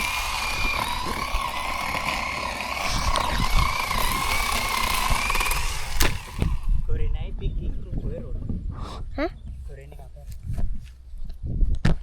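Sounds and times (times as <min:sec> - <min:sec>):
electric chainsaw whining: 0:00.0 - 0:06.9.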